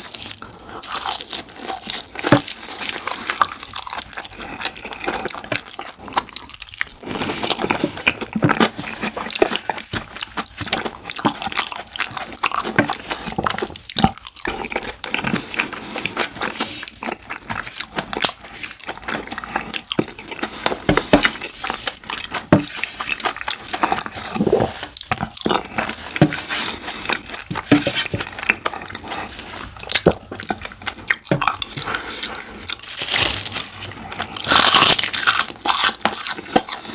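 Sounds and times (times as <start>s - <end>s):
wet chewing and smacking: 0.0s - 36.9s
crunching: 23.0s - 36.9s.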